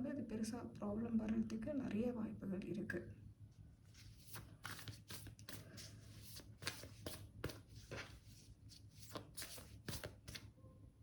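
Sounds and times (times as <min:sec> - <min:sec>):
cards shuffling: 0:04.0 - 0:10.5.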